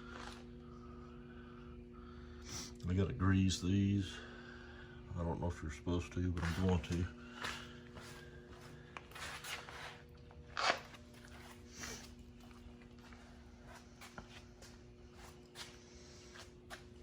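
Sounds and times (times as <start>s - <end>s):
faint steady hum: 0.0s - 17.0s
footsteps: 6.4s - 10.0s.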